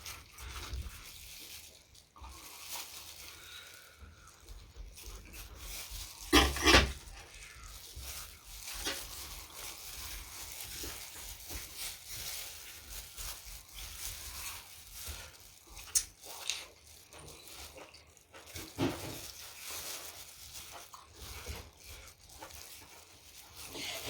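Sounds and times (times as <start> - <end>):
wet chewing and mouth smacks: 13.6 - 18.8, 20.7 - 23.3.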